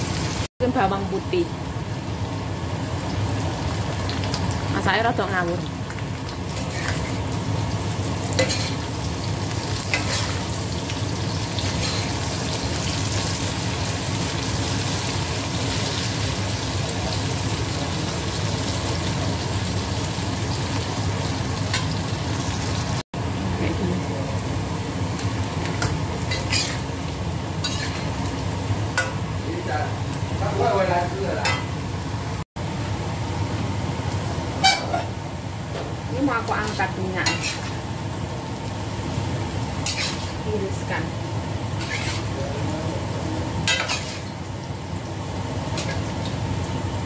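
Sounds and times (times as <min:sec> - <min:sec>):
food sizzling in hot oil: 0:00.0 - 0:47.0
metal spatula scraping wok: 0:09.9 - 0:10.4, 0:26.3 - 0:26.9, 0:27.6 - 0:28.2, 0:34.6 - 0:35.1, 0:36.6 - 0:37.8, 0:39.8 - 0:40.4, 0:41.8 - 0:42.4, 0:43.6 - 0:44.4.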